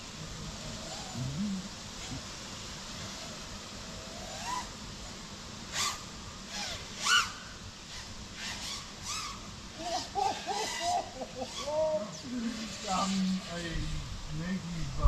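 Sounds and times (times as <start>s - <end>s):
outdoor background hiss: 0.0s - 15.0s
short bird calls: 5.7s - 9.5s.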